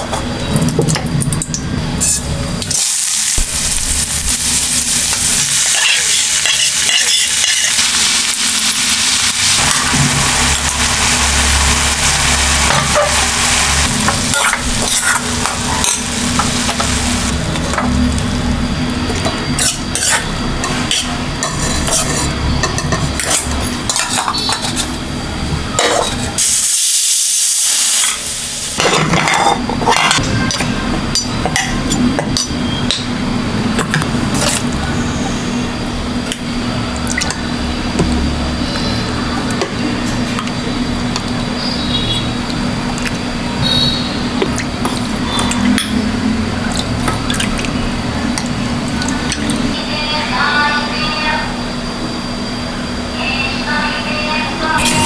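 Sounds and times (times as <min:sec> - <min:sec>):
food sizzling in a pan: 0:02.1 - 0:17.6, 0:26.4 - 0:28.9
utensil scraping a metal pan: 0:20.9 - 0:22.4.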